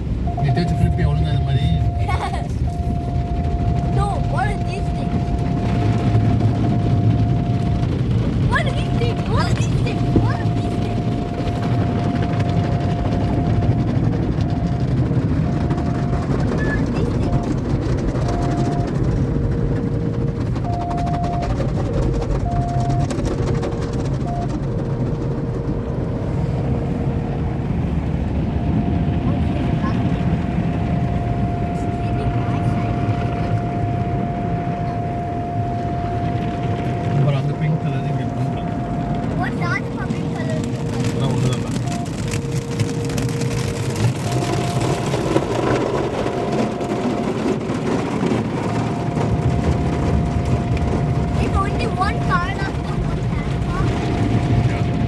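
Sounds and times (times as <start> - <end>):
heavy low rumble: 0.0 - 55.0
steady humming tones: 0.0 - 55.0
water spray on car: 0.0 - 55.0
rotating wash brushes: 0.1 - 55.0
fast patter: 0.2 - 27.5, 28.3 - 55.0
water and brushes on car: 36.0 - 55.0.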